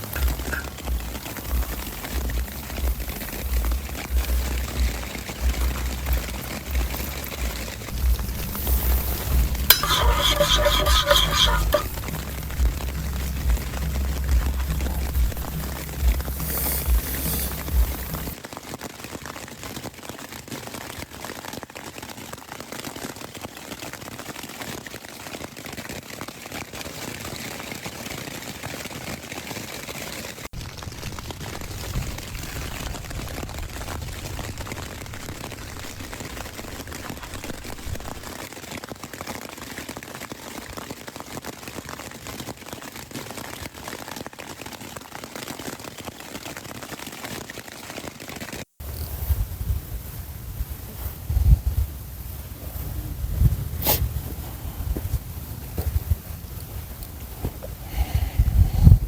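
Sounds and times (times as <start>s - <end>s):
rain pattering: 0.0s - 59.0s
low rumble: 11.8s - 18.4s.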